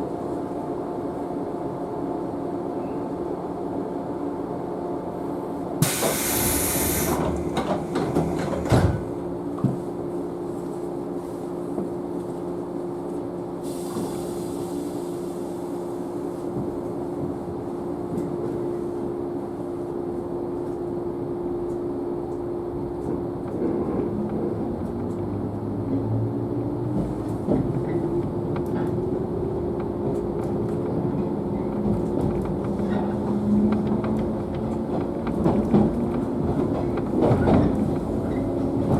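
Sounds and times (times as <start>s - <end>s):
train carriage hum: 0.0s - 38.9s
wheels rumbling on rail: 0.0s - 38.9s
compressed air hiss: 5.8s - 7.2s, 13.6s - 15.0s
train clunks: 5.8s - 9.9s, 26.8s - 38.9s.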